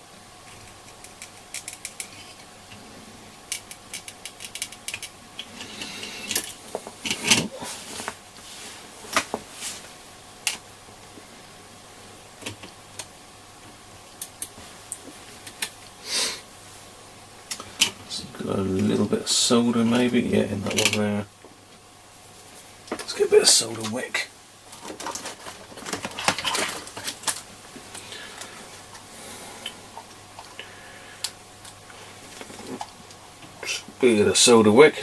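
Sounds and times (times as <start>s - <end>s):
faint steady hum: 0.0s - 35.0s
small tools clicking and tapping: 0.6s - 2.5s, 3.5s - 5.2s.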